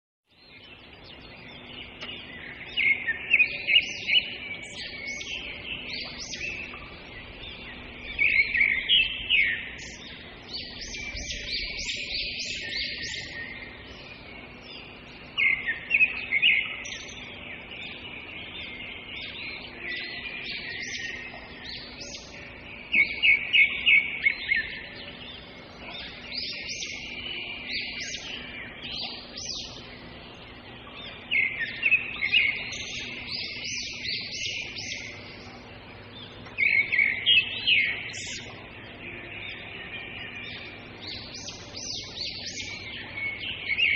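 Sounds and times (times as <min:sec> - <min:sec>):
songbirds chirping: 0:00.2 - 0:43.9.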